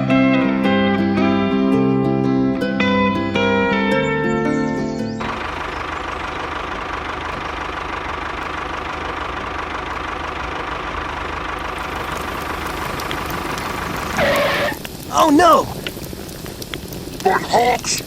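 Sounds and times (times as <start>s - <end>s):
small machine motor running: 5.2s - 14.9s.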